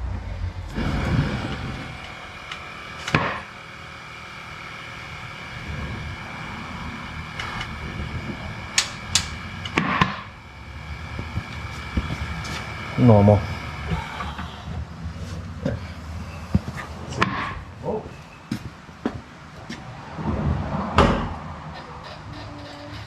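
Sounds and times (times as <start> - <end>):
sharp knocks and clicks: 8.8 - 10.3.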